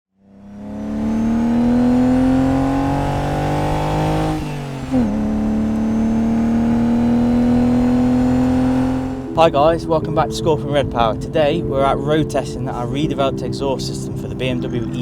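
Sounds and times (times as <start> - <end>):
car engine accelerating: 0.2 - 15.0.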